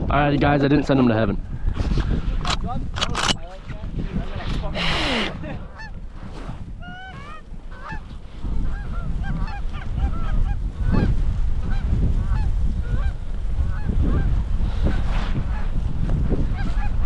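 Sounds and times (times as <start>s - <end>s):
wind buffeting microphone: 0.0s - 17.0s
geese honking and cackling: 4.8s - 6.0s, 6.8s - 14.3s.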